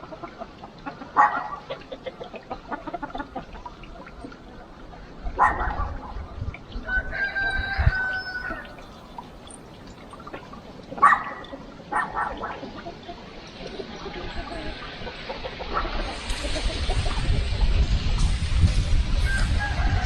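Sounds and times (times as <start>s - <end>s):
chickens clucking: 0.0s - 20.0s
chicken squawks: 0.1s - 3.4s, 6.8s - 9.1s, 11.0s - 13.2s
rooster crowing: 6.8s - 9.0s, 19.2s - 20.0s.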